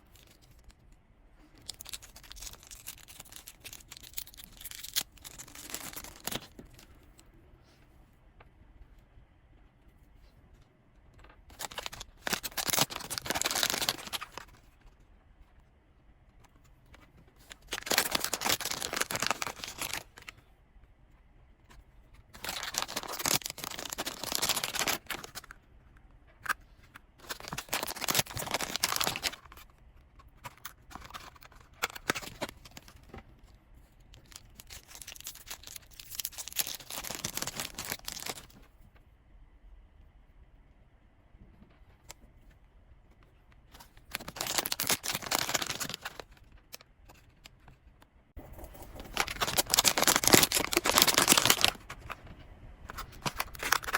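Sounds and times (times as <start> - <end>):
packaging torn and crinkled: 1.6 - 6.6, 11.5 - 14.6, 17.4 - 20.3, 22.4 - 25.5, 27.2 - 29.6, 30.5 - 33.0, 34.2 - 38.5, 44.1 - 47.5, 48.9 - 52.2, 52.9 - 53.9.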